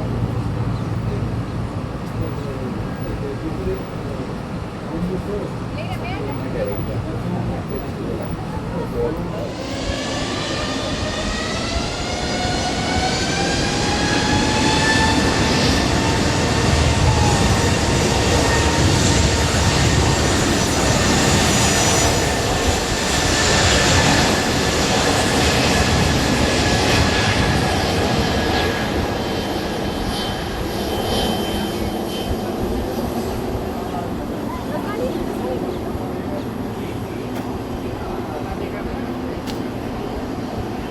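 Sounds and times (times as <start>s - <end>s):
jet engines spooling up whine: 0.0s - 40.9s
loud jet roar: 6.7s - 40.9s.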